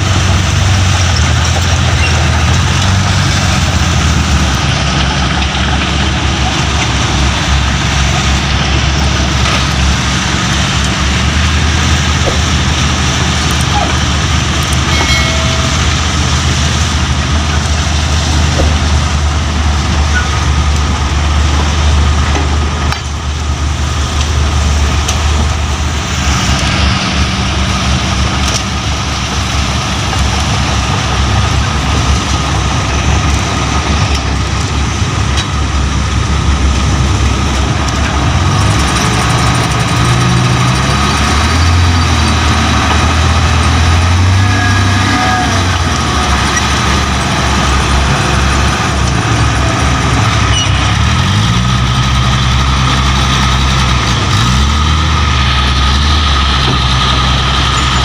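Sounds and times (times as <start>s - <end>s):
diesel truck engines running: 0.0s - 58.0s.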